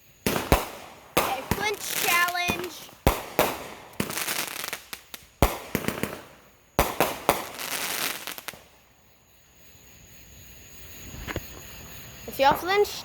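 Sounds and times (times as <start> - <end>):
fireworks crackling: 0.0 - 9.1, 10.8 - 13.0
fireworks bangs: 0.1 - 8.8.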